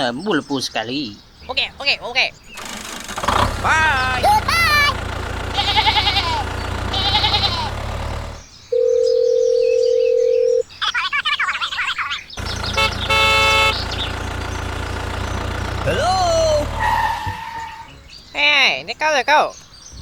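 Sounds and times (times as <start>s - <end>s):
rapid chirping: 1.4s - 8.4s, 12.4s - 18.3s
sheep bleating: 3.6s - 7.9s
toy motor hum: 3.7s - 8.4s.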